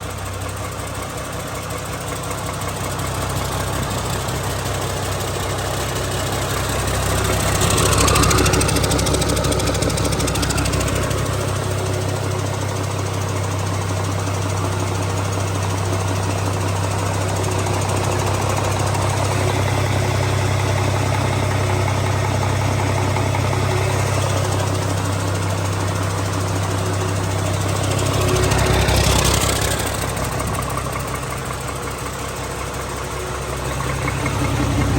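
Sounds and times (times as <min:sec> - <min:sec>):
diesel engine idling and revving: 0:00.0 - 0:34.9.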